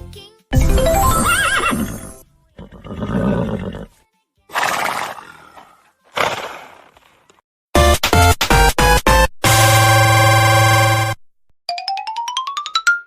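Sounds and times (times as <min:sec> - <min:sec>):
horse whinnying: 0:01.1 - 0:03.9, 0:04.5 - 0:06.8.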